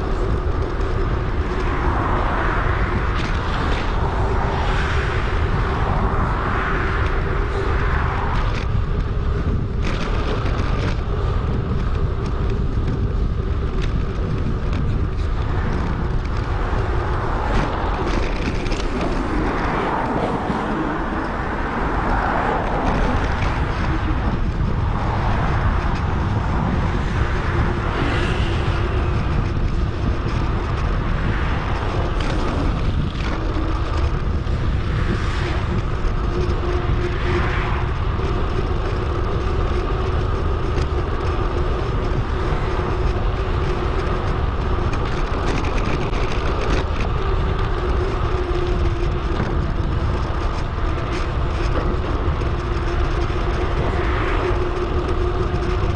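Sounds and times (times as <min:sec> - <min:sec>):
road and tyre noise: 0:00.0 - 0:55.9
wind buffeting microphone: 0:00.0 - 0:55.9.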